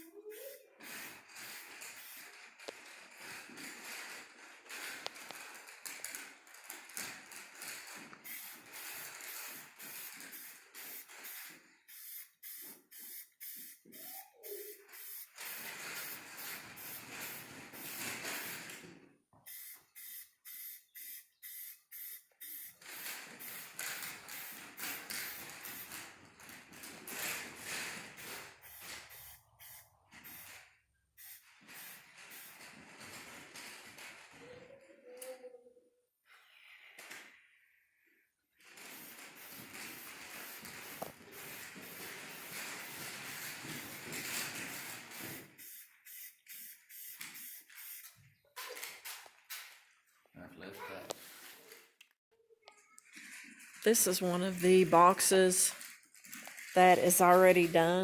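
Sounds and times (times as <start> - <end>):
spray paint can hissing: 0.3 - 2.4, 8.2 - 18.7, 19.4 - 26.1, 27.3 - 32.7, 38.8 - 48.2.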